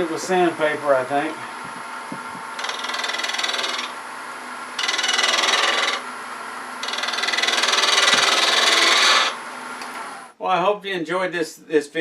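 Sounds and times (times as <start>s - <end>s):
wood lathe hum: 1.1s - 10.3s
sandpaper scratching spinning wood: 2.6s - 4.0s, 4.8s - 6.1s, 6.8s - 9.4s.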